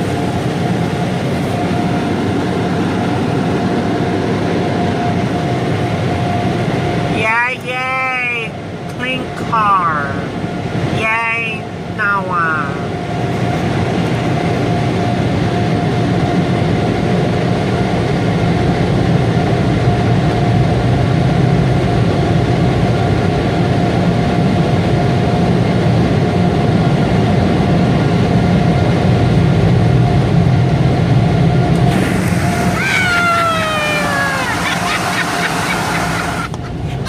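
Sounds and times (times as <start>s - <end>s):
car wash machinery rushing: 0.0s - 7.4s, 31.1s - 37.0s
steady machine whine: 0.0s - 37.0s.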